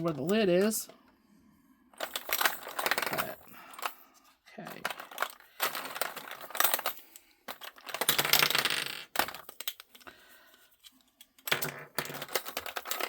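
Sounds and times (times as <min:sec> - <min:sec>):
plastic beads clattering into container: 0:02.0 - 0:03.9, 0:04.7 - 0:10.1, 0:11.4 - 0:13.0.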